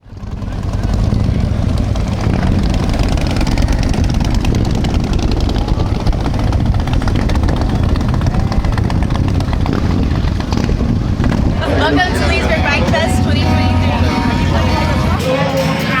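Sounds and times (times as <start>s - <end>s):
motorcycle engines rumbling: 0.0s - 16.0s.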